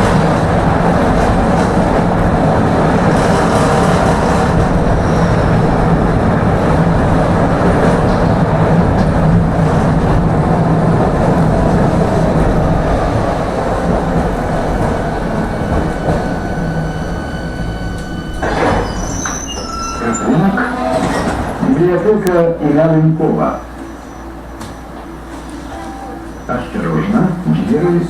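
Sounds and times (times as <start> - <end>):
tram wheels rumbling on rails: 0.0 - 28.0
traction motor hum: 10.1 - 22.4
thin high whines: 15.0 - 21.6.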